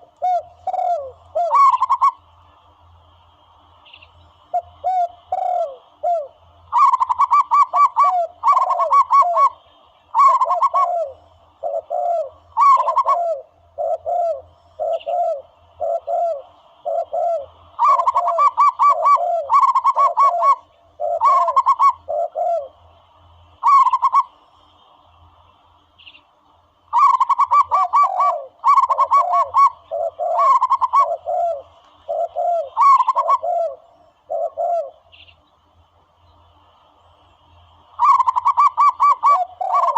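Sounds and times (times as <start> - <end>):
rapid higher cooing notes: 0.0 - 2.2, 4.5 - 9.6, 10.2 - 22.8, 23.6 - 24.3, 26.9 - 35.0, 38.0 - 39.9
dove cooing: 0.0 - 2.3, 4.5 - 24.4, 26.9 - 35.3, 37.9 - 39.9.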